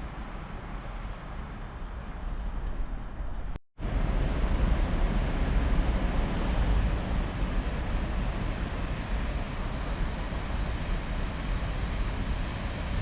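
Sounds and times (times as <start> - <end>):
train rumbling through station: 0.0 - 13.0
steady high whine: 3.8 - 13.0.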